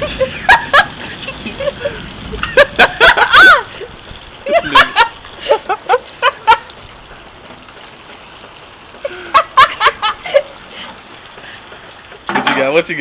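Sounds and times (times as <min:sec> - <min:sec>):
burst of laughter: 0:00.0 - 0:03.9, 0:04.5 - 0:06.7, 0:09.0 - 0:10.6
heavy rain and hail: 0:00.0 - 0:13.0.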